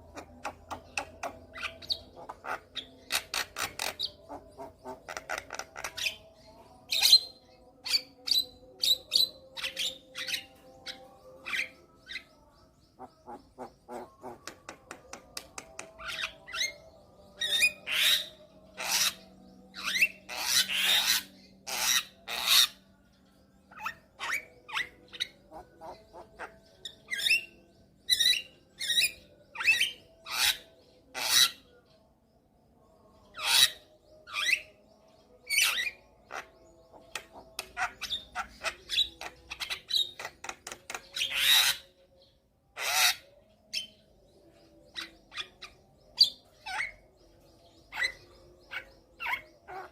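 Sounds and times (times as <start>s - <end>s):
bird singing harsh rasping calls: 0.0s - 22.8s, 23.7s - 31.7s, 35.4s - 44.1s.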